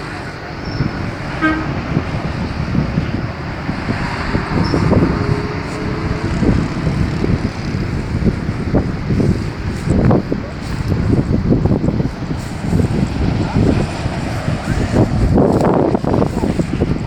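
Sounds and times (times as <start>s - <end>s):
vehicle engine rumbling: 0.0s - 17.0s
short horn toot: 1.3s - 2.2s.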